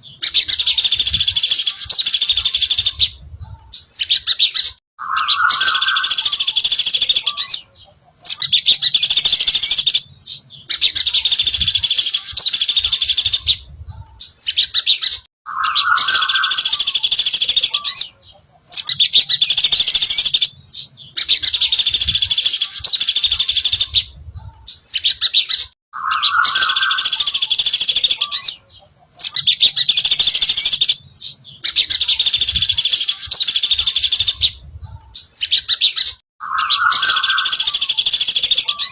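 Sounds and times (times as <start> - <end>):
songbird chirping: 0.0 - 38.9.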